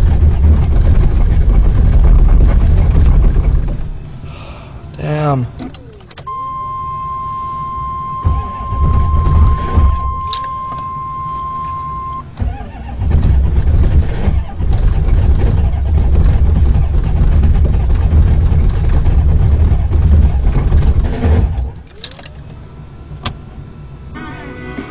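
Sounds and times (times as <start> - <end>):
starter cranking engine: 0.0 - 22.6
steady high beep: 6.3 - 12.2.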